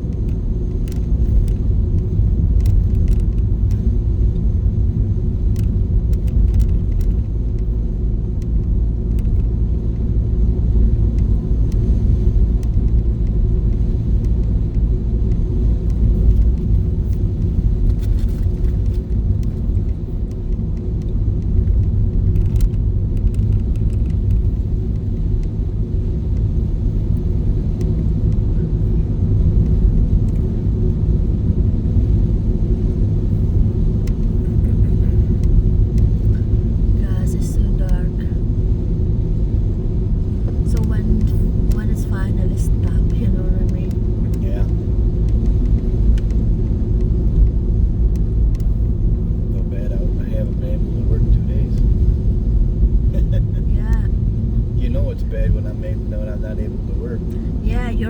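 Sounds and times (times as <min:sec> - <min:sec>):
car interior road and engine noise: 0:00.0 - 0:58.0
faint clicks: 0:00.2 - 0:03.9, 0:05.5 - 0:07.7, 0:14.2 - 0:25.6, 0:44.6 - 0:48.8.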